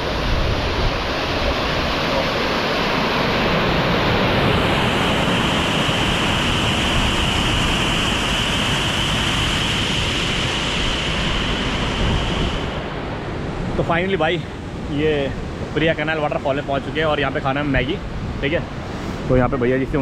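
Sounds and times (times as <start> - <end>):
waterfall roaring: 0.0 - 15.2.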